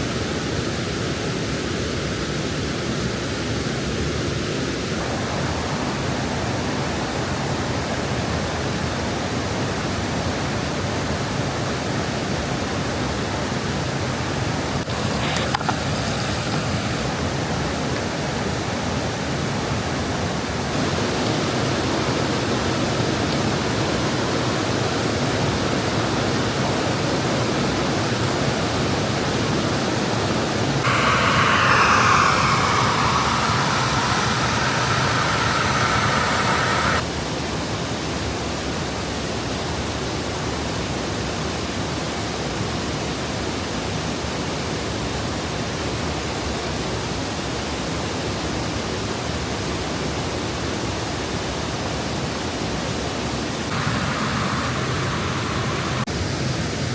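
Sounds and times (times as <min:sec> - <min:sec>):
waterfall rushing: 0:20.7 - 0:24.2, 0:30.6 - 0:37.0, 0:53.7 - 0:56.9
high tones with falling glide: 0:30.8 - 0:37.0.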